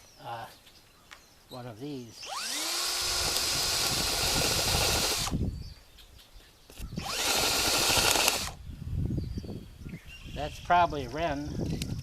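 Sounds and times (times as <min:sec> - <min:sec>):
power drill boring into gourd: 0:02.2 - 0:05.4, 0:07.0 - 0:08.6.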